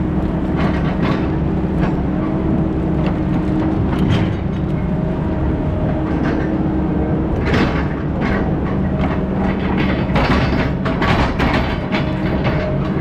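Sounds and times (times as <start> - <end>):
diesel engine running: 0.0 - 13.0
metal rattling and clanking: 7.3 - 13.0.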